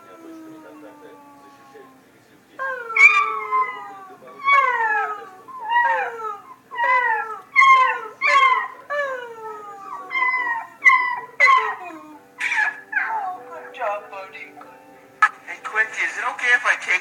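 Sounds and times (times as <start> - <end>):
cat meowing: 2.7 - 6.1.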